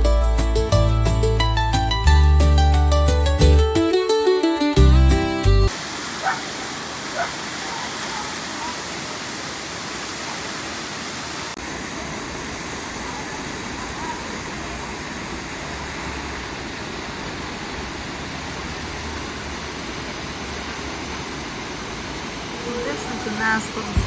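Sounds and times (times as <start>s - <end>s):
waterfall rushing: 5.7s - 24.0s.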